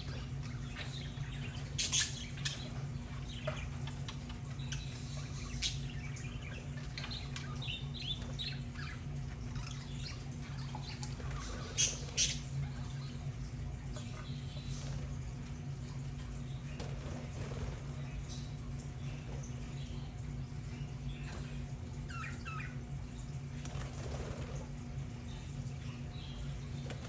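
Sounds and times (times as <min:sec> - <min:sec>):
budgerigars chirping: 0:00.0 - 0:13.2.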